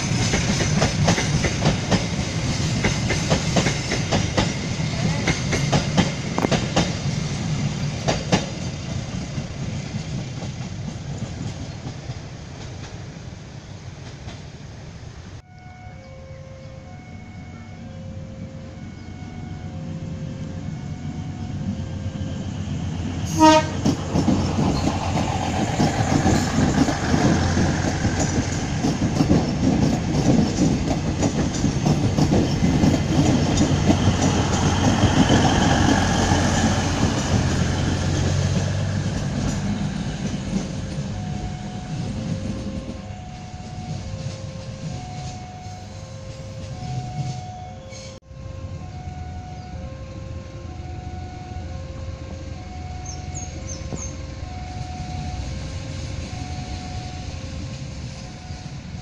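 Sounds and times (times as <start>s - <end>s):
wheels clacking over rail joints: 0.0s - 13.0s, 23.0s - 47.5s
train horn blast: 23.2s - 23.9s.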